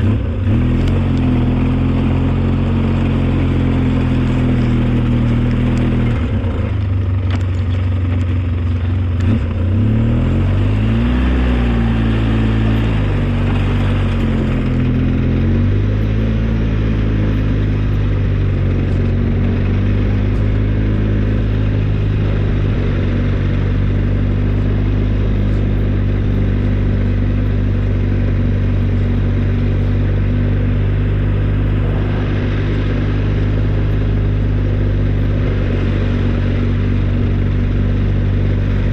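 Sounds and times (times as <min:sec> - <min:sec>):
snowplow engine running: 0:00.0 - 0:38.9.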